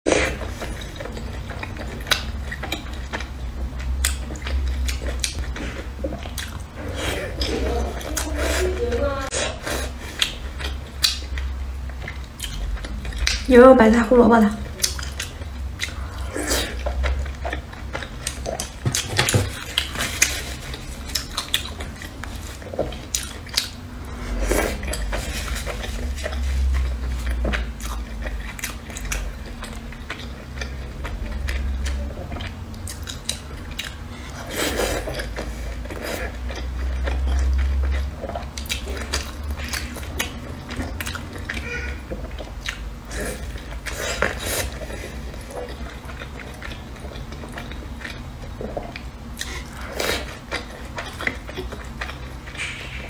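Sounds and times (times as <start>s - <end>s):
wet squishy chewing: 0.1s - 53.0s.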